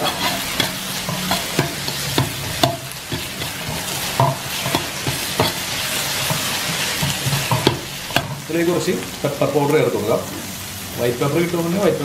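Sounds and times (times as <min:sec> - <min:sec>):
metal ladle scraping a pan: 0:00.0 - 0:08.5
vegetables sizzling in oil: 0:00.0 - 0:12.0.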